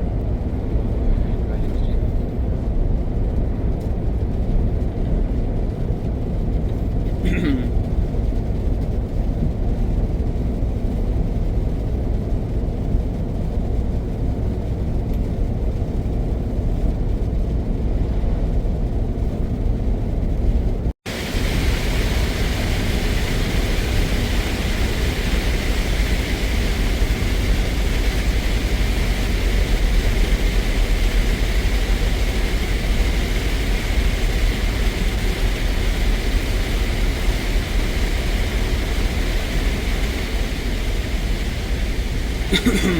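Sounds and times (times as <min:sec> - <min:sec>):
truck engine and road drone: 0:00.0 - 0:42.9
tyre and wind hiss: 0:21.1 - 0:42.9.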